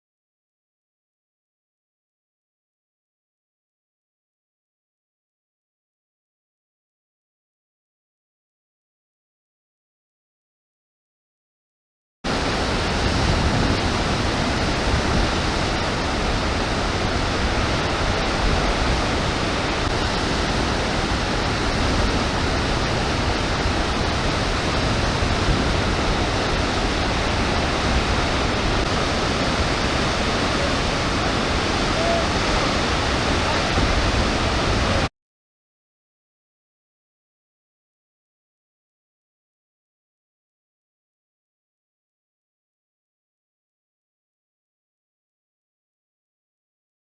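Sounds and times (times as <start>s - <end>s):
waterfall rushing: 12.3s - 35.1s.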